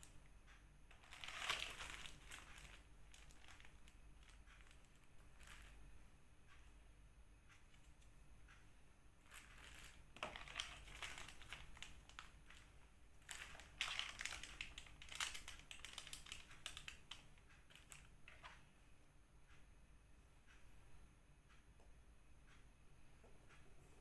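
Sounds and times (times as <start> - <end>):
packaging crinkling: 0.9 - 5.8, 9.3 - 12.6, 13.2 - 18.0.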